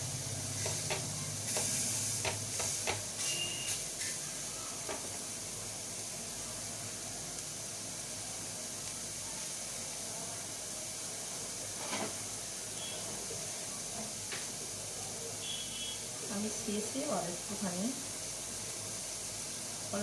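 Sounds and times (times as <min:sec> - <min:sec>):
chicken sizzling in a frying pan: 0:00.0 - 0:20.0
utensil clicking against pan: 0:00.6 - 0:03.1.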